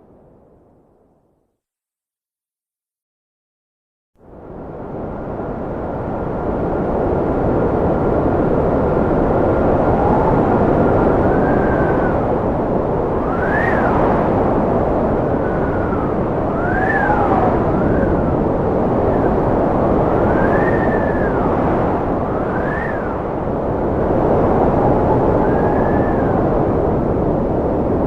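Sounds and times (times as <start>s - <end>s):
strong wind rushing: 4.3s - 28.0s
thin wind whistle: 9.7s - 27.4s.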